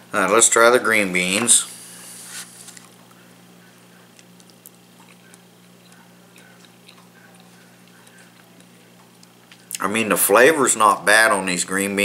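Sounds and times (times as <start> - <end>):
steady low hum: 0.0 - 12.0
faint chewing with mouth clicks: 2.7 - 9.9.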